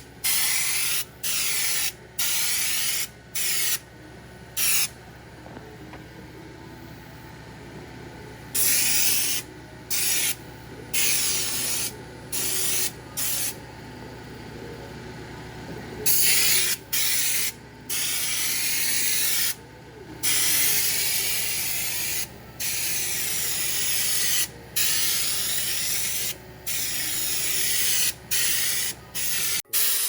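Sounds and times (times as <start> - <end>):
steady low hum: 0.0 - 29.7
spray gun hissing: 20.2 - 30.0.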